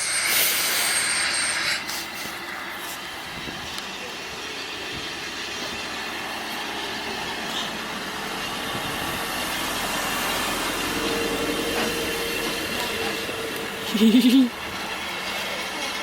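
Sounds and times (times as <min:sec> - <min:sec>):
train rushing and rumbling: 0:00.0 - 0:16.0.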